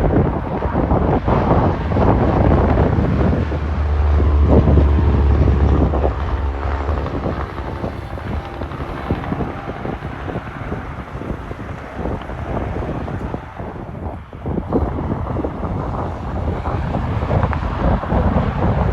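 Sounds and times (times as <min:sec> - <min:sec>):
truck diesel engine rumbling: 0:00.0 - 0:18.9
wind buffeting microphone: 0:00.0 - 0:18.9.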